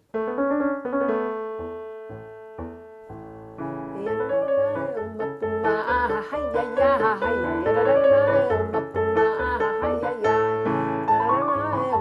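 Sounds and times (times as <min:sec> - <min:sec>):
electric keyboard playing: 0:00.0 - 0:12.0
person singing: 0:03.9 - 0:12.0.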